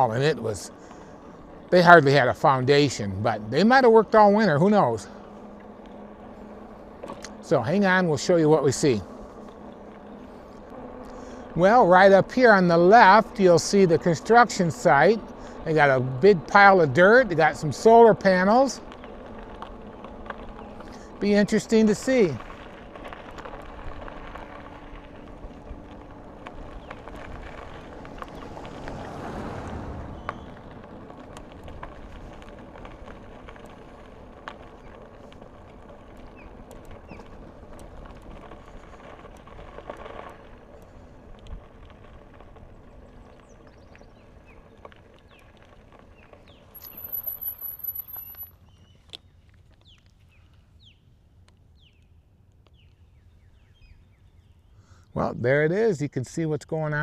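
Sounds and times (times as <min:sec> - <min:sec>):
bicycle tyres rolling on trail: 0:00.0 - 0:57.0
bicycle clicks: 0:18.3 - 0:29.3, 0:30.0 - 0:50.6.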